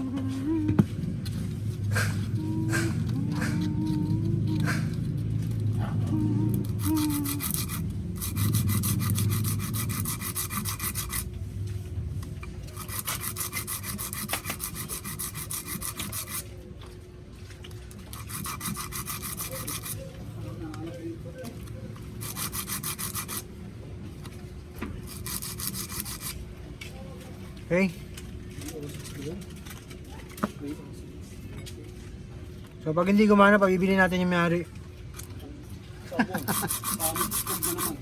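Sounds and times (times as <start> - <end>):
abrasive rubbing on metal contacts: 0.0 - 11.3, 12.8 - 16.5, 18.1 - 20.2, 22.1 - 23.5, 25.1 - 26.4, 36.4 - 38.0.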